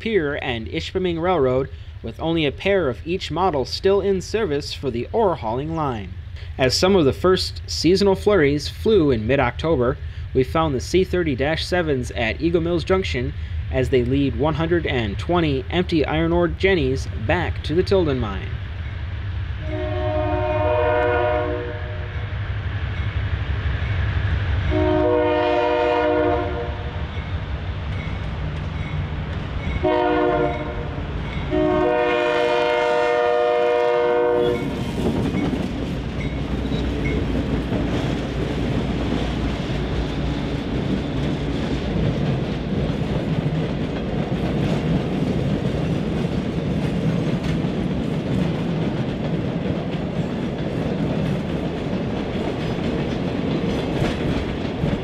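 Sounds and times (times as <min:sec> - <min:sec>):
locomotive air horn: 0:19.6 - 0:22.2, 0:24.7 - 0:27.0, 0:29.8 - 0:34.8
train cars clickety-clack: 0:23.8 - 0:55.0.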